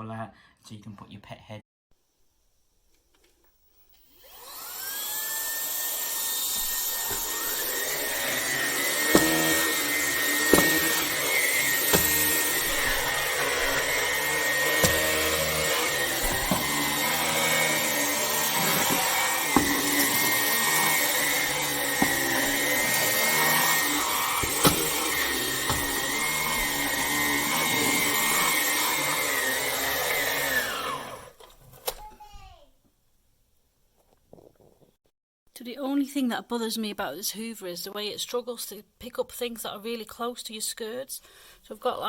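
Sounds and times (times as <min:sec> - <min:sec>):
vacuum cleaner motor whining: 0:03.5 - 0:31.5.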